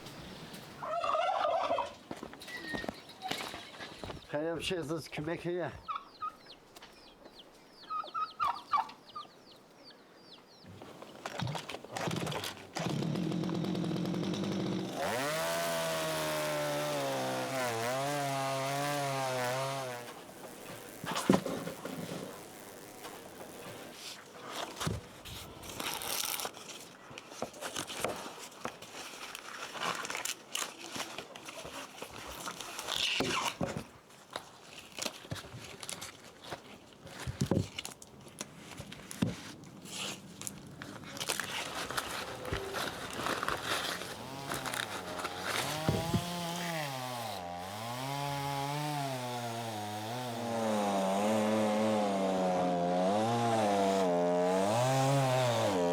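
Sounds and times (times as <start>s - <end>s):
chickens clucking: 0.5s - 2.0s, 7.2s - 9.4s
small engine running: 12.8s - 21.2s
rustling: 20.0s - 27.0s, 27.6s - 46.4s.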